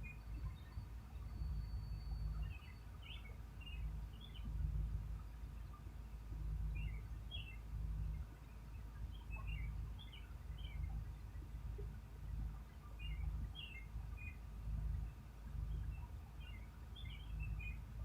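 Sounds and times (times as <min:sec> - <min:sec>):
bird chirping: 0:00.0 - 0:04.5, 0:06.7 - 0:11.2
low uneven rumble: 0:00.0 - 0:18.0.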